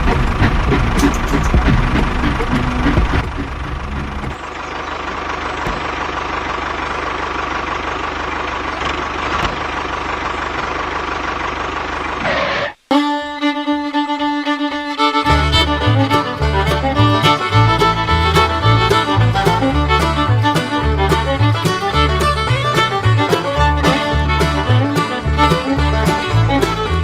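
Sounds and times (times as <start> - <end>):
fiddle music with bouncy beat: 0.0 - 4.4, 12.9 - 27.0.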